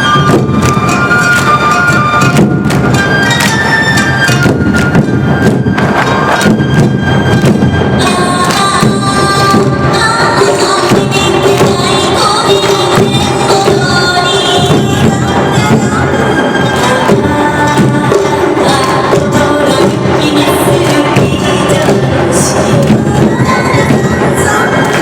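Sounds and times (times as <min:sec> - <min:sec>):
high flute melody: 0:00.0 - 0:10.5
drums and percussion beat: 0:00.0 - 0:25.0.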